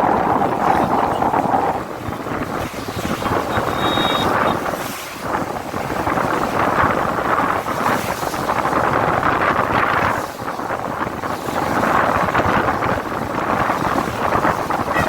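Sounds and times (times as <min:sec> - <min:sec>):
steady traffic noise: 0:00.0 - 0:07.8, 0:12.3 - 0:15.0
wind buffeting microphone: 0:00.0 - 0:15.0.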